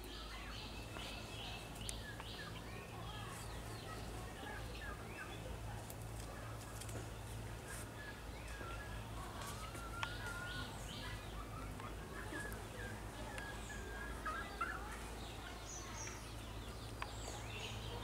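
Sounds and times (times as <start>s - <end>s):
birds calling and chirping: 0.0s - 18.0s
faint clicks: 16.8s - 17.3s.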